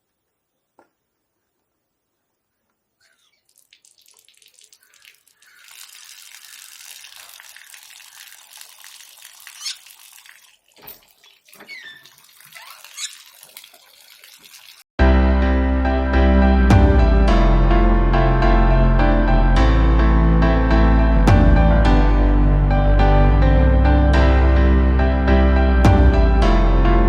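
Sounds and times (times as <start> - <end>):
running water: 3.0 - 14.9
short rising squeaks: 9.5 - 10.0, 10.8 - 13.4
loud music: 15.0 - 27.0.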